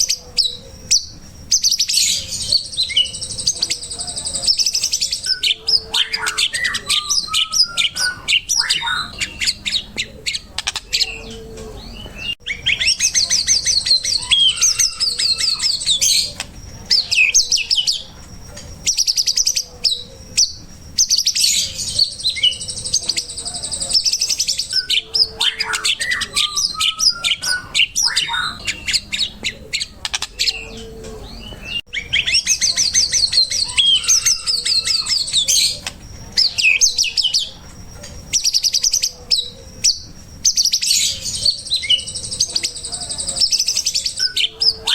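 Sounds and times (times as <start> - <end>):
recorded songbird song: 0.0 - 44.9.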